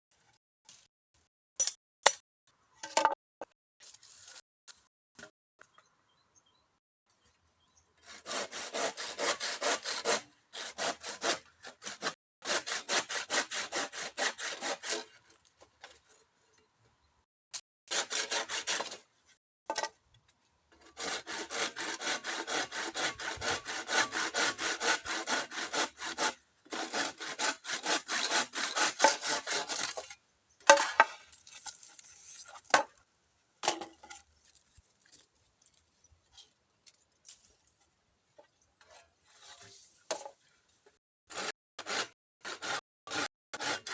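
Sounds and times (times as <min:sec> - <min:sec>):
hand saw cutting bamboo: 0:08.0 - 0:16.1, 0:17.9 - 0:19.0, 0:20.7 - 0:31.3, 0:41.3 - 0:43.9.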